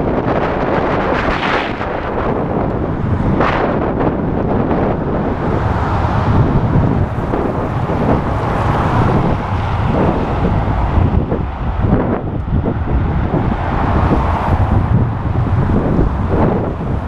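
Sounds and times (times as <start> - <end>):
road traffic: 0.0 - 17.0
wind buffeting microphone: 0.0 - 17.0.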